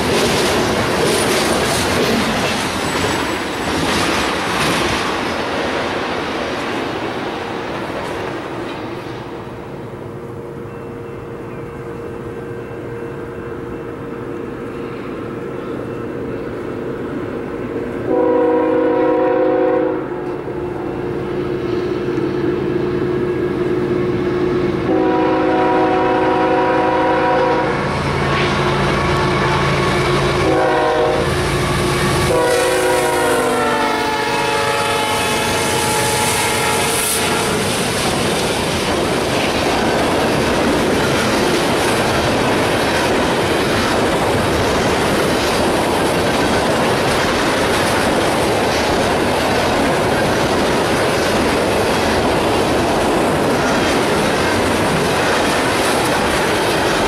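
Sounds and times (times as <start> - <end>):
train wheels clickety-clack: 0.0 - 9.4, 24.2 - 57.0
locomotive horn blasts: 18.1 - 20.2, 24.8 - 37.6.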